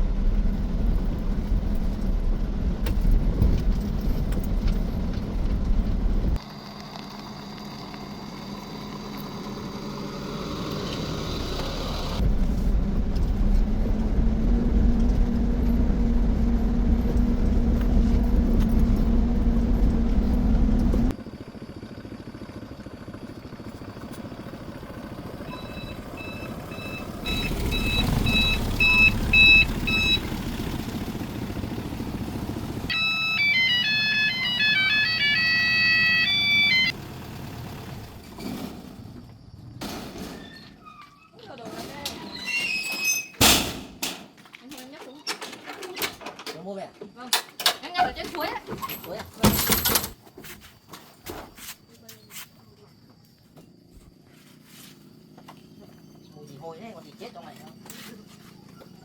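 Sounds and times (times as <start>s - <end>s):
engine droning: 0.0s - 40.0s
high electronic beeping tunes: 25.5s - 30.3s, 32.9s - 36.9s.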